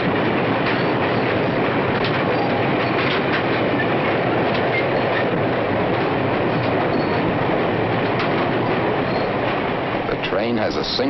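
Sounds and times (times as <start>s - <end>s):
clattering clicks: 0.0s - 9.6s
train wheels rumbling on rail: 0.0s - 11.0s
high wheel squeals: 6.9s - 7.3s, 9.1s - 9.4s.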